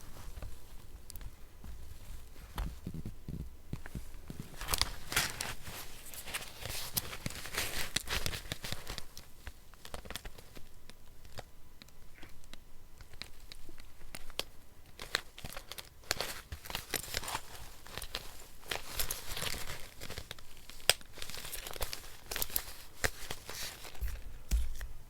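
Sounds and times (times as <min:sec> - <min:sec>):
paper crinkling and tearing: 0:04.2 - 0:10.5, 0:15.0 - 0:24.9.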